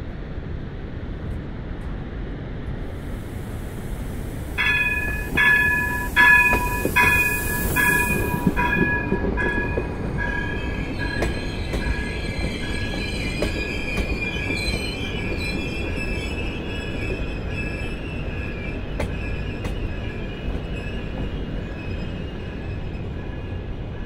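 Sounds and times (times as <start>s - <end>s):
train warning bell ringing: 4.6s - 14.5s
wavering high wheel squeal: 4.6s - 24.0s.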